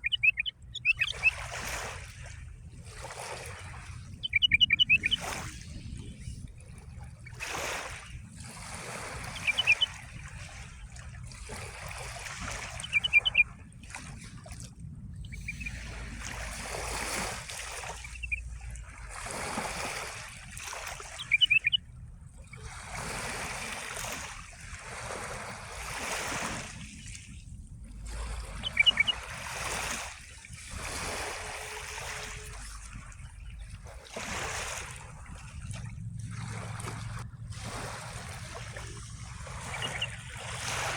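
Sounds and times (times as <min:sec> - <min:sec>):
songbird chirping: 0:00.0 - 0:01.4, 0:04.2 - 0:05.4, 0:09.2 - 0:10.0, 0:12.8 - 0:13.4, 0:15.2 - 0:15.9, 0:17.8 - 0:18.5, 0:21.1 - 0:21.8, 0:28.5 - 0:29.3, 0:39.6 - 0:40.4
small waves splashing: 0:00.0 - 0:40.9.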